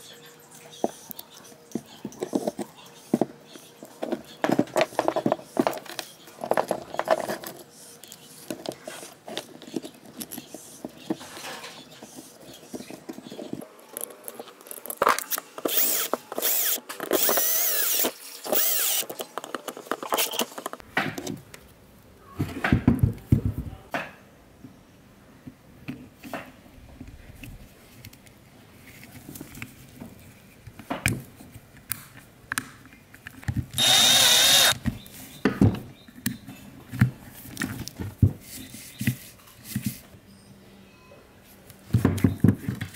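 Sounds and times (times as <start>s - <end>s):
small power tool whining: 15.7s - 19.1s, 33.8s - 34.8s.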